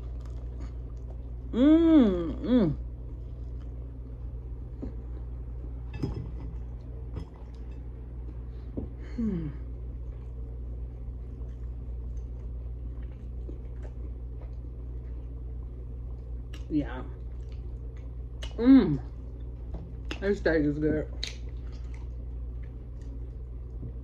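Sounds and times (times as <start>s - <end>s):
faint chewing: 0.0s - 1.5s, 10.0s - 20.2s, 21.0s - 24.0s
steady low hum: 0.0s - 24.0s
person humming mm: 1.5s - 2.8s, 9.0s - 9.7s, 18.5s - 19.1s.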